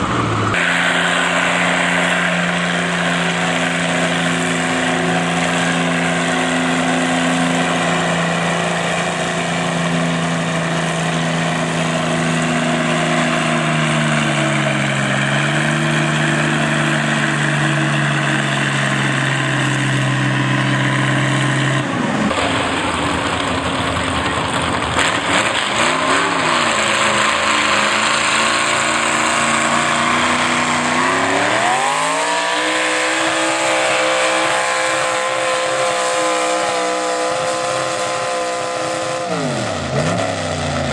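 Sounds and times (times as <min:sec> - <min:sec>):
rough engine revving: 0:00.0 - 0:40.9
tractor engine running hard: 0:00.0 - 0:40.9.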